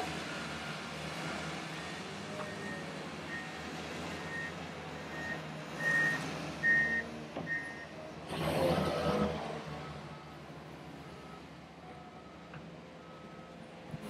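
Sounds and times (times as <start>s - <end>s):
reversing alarm beeping: 1.8s - 3.6s, 4.2s - 7.9s.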